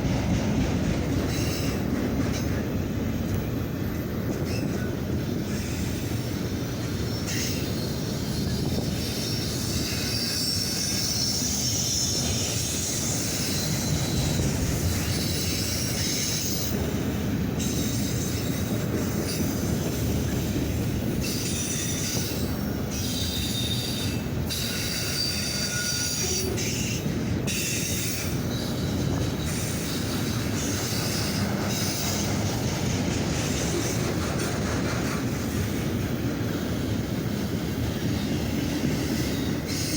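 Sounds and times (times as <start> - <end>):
steel wheels rumbling on rail: 0.0 - 39.9
wheel squeal: 7.0 - 16.8, 21.2 - 32.3.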